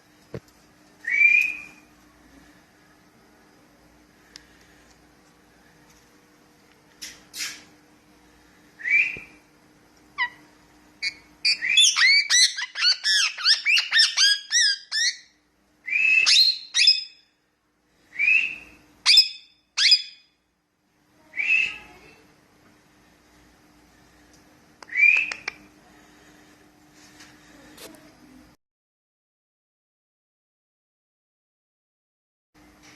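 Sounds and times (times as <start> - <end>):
parakeet whistling and chirping: 1.1 - 1.8, 11.0 - 17.2, 18.2 - 20.3, 21.4 - 21.9.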